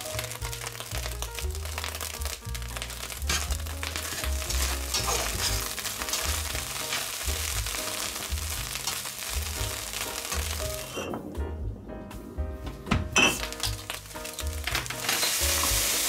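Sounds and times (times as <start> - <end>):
meat and onions sizzling in a pot: 0.0 - 11.1, 13.2 - 16.0
background music with bass line: 0.0 - 16.0
metal spatula scraping pan: 3.3 - 7.1.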